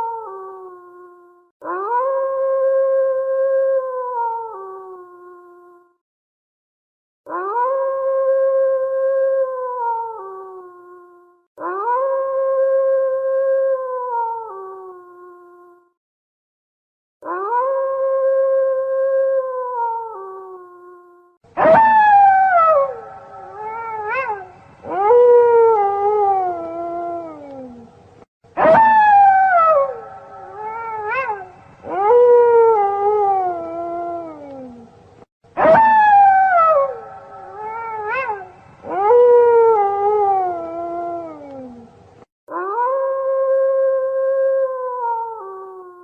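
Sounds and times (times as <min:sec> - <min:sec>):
wolf yelp: 0:21.6 - 0:27.5, 0:28.6 - 0:34.7, 0:35.6 - 0:41.7
wolves howling: 0:21.6 - 0:27.8, 0:28.6 - 0:34.7, 0:35.6 - 0:41.8.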